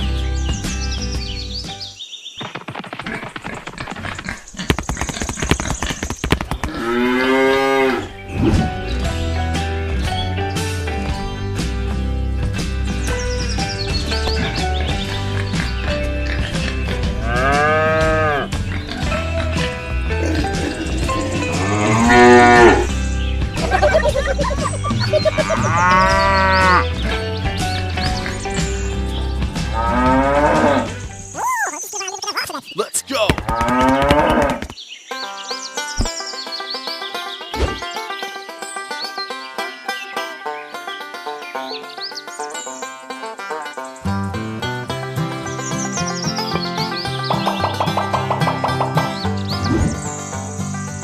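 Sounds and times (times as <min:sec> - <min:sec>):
rapid clicking and tapping: 0:02.4 - 0:06.7, 0:33.3 - 0:34.8
cow mooing: 0:06.7 - 0:08.1, 0:20.7 - 0:22.9, 0:25.2 - 0:26.8
wavering pitched sounds: 0:23.6 - 0:26.0.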